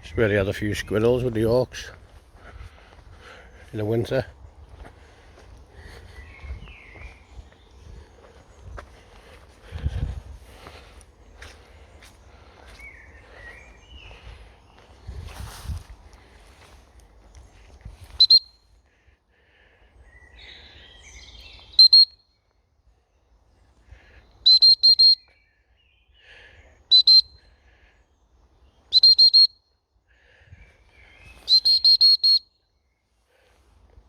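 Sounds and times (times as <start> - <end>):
faint bird chirps: 5.8 - 8.9, 19.9 - 33.5
dog whistle blasts: 18.2 - 18.5, 21.8 - 22.2, 24.4 - 25.2, 26.9 - 27.3, 28.9 - 29.6, 31.5 - 32.5.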